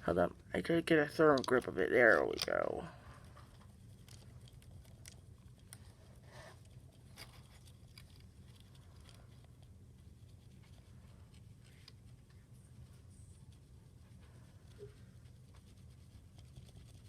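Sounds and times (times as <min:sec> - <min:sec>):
low steady hum: 0:00.0 - 0:17.0
marker scratching on toy car: 0:13.2 - 0:17.0.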